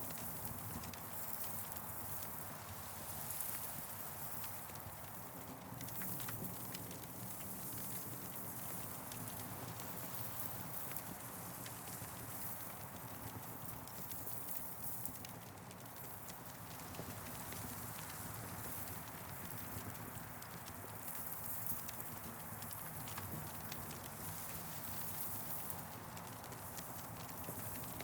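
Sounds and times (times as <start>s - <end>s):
campfire crackling and popping: 9.2s - 28.0s.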